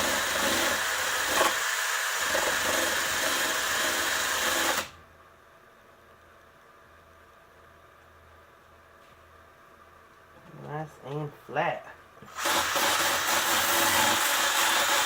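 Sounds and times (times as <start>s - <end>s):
power tool grinding glue: 0.0s - 5.0s, 12.3s - 15.0s.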